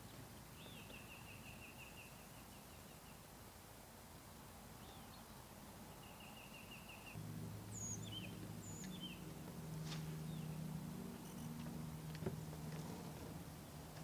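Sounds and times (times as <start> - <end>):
songbirds calling: 0.0 - 3.6, 4.7 - 14.0
low steady motor hum: 7.2 - 14.0.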